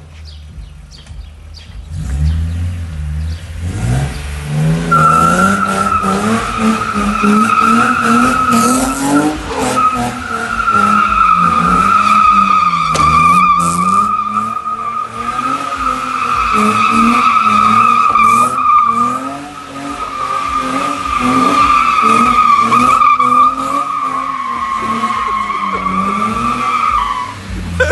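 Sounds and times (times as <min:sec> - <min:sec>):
car engine revving: 0:00.4 - 0:27.9
tyres squealing: 0:04.9 - 0:27.9.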